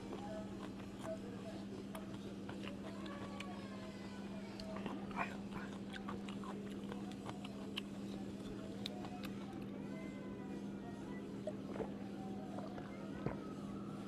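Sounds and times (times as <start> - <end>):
chewing and lip smacks: 0.0 - 9.9, 10.8 - 14.0.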